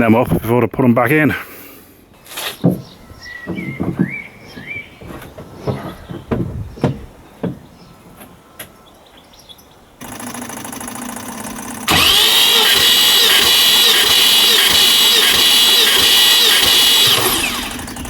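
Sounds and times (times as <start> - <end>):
starter motor cranking engine: 10.0 - 18.0.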